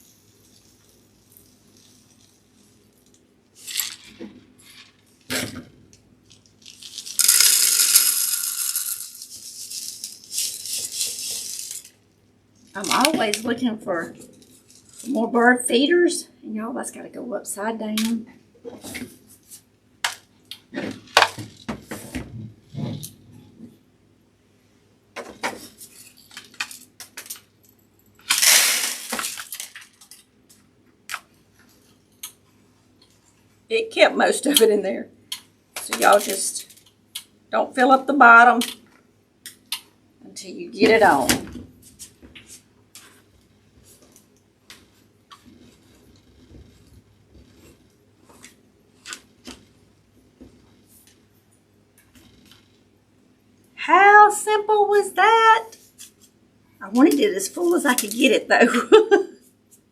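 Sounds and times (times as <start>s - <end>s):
seeds rattling in a jar: 0.0s - 5.2s, 6.3s - 12.0s, 28.2s - 30.2s
seeds pouring into a jar: 6.6s - 11.9s.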